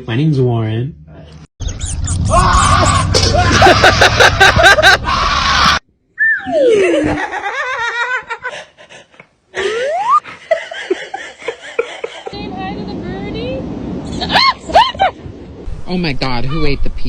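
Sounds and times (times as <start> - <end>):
laughing voice with pitch slides: 2.8 - 5.6, 6.3 - 12.6.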